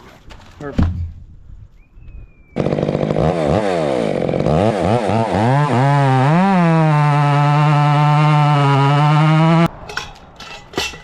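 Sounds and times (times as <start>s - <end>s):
chainsaw engine revving: 2.6s - 9.7s.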